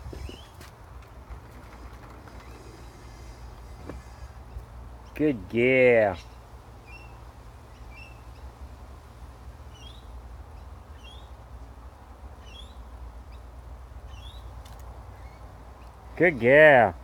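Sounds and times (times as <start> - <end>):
small bird chirping: 9.7 - 11.4, 12.4 - 16.2.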